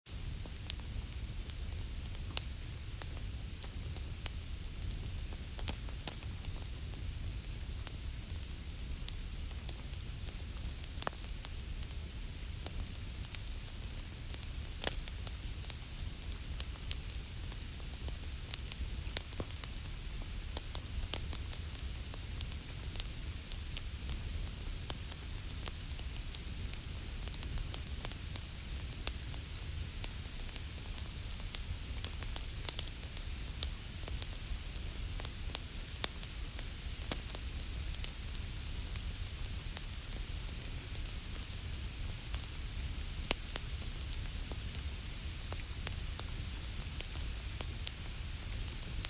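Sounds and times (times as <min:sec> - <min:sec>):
wood fire crackling and popping: 0:00.1 - 0:49.0.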